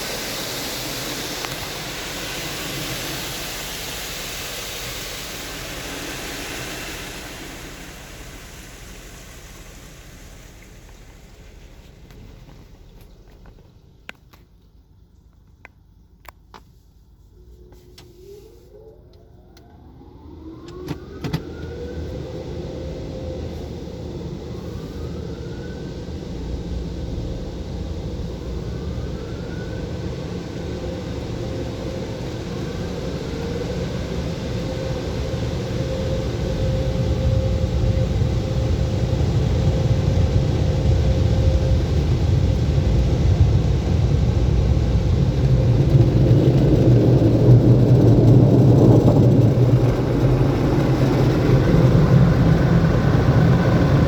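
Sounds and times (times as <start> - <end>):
car wash dryer blowers whining: 0.0 - 15.1, 17.0 - 54.0.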